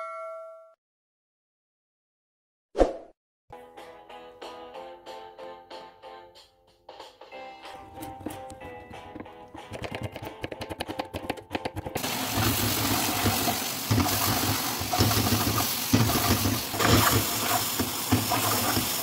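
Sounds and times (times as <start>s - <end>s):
food sizzling in hot oil: 12.0s - 19.0s
wok scraping on grate: 12.0s - 19.0s.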